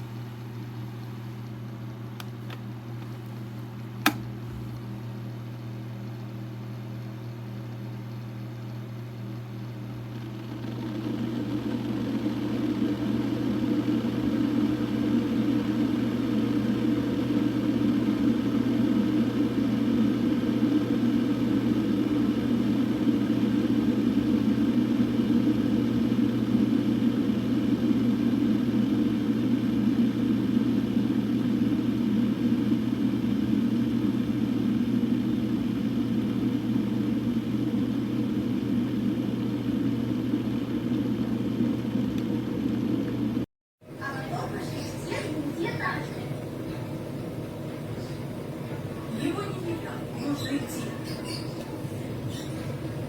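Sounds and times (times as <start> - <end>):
kettle switch click: 4.0 - 4.7
low hum: 9.9 - 53.0
kettle heating water rushing: 10.3 - 43.1, 43.9 - 53.0.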